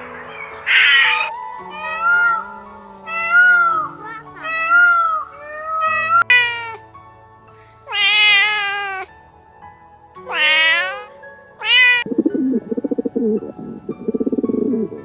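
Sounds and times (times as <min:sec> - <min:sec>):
cat meowing: 0:03.1 - 0:06.8, 0:07.9 - 0:09.1, 0:10.3 - 0:12.1.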